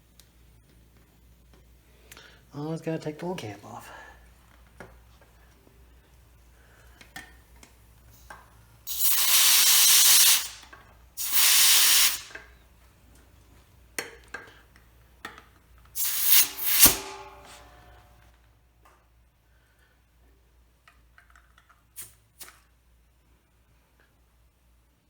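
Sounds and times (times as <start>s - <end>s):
compressed air hissing from hose: 8.9s - 10.6s, 11.2s - 12.4s, 16.0s - 17.7s
air fitting clicks: 8.9s - 12.5s, 15.9s - 17.6s.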